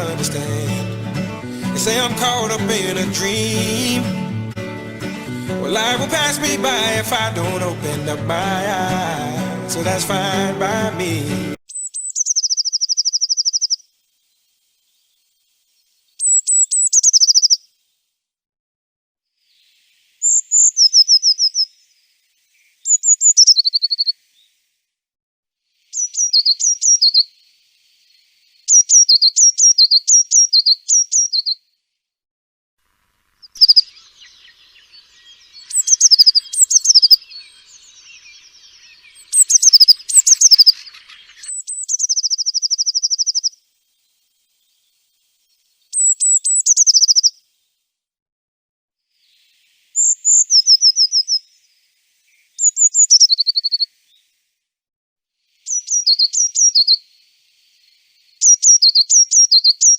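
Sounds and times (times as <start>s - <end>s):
blue tit singing: 0.0s - 13.8s, 16.2s - 17.6s, 20.2s - 21.7s, 22.9s - 24.2s, 26.0s - 27.3s, 28.7s - 31.6s, 33.5s - 43.6s, 45.9s - 47.3s, 50.0s - 51.4s, 52.6s - 53.9s, 55.7s - 57.0s, 58.4s - 59.9s
buzzy bird chatter: 11.7s - 13.8s, 16.2s - 17.6s, 33.4s - 43.6s, 46.0s - 47.3s.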